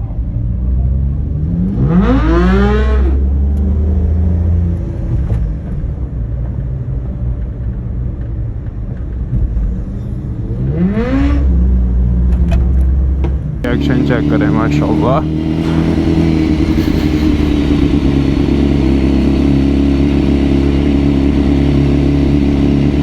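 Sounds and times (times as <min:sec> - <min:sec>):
motorbike engine revving: 0:10.6 - 0:11.7, 0:13.6 - 0:23.0.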